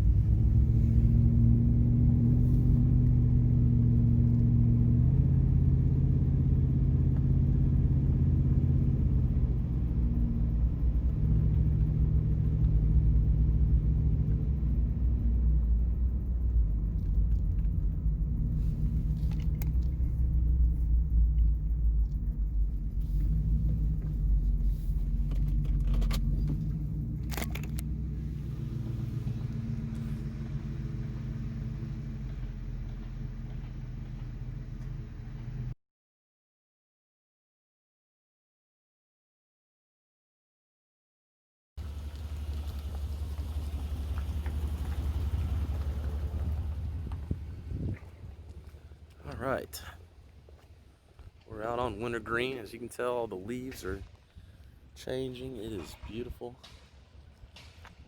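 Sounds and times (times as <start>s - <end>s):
car engine and road rumble: 0.0s - 35.8s, 41.8s - 58.0s
light clicks or rattles: 18.7s - 28.1s.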